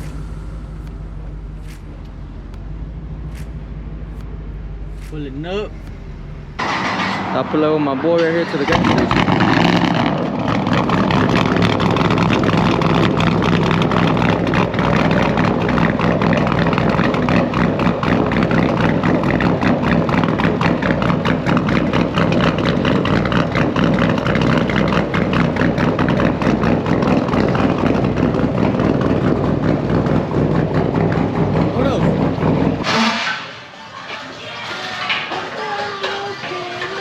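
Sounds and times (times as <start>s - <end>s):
car engine idling: 0.0s - 34.1s.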